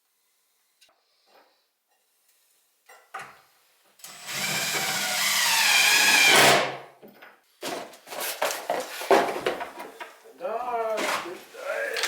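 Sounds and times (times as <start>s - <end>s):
electric drill motor whining: 4.1s - 6.5s.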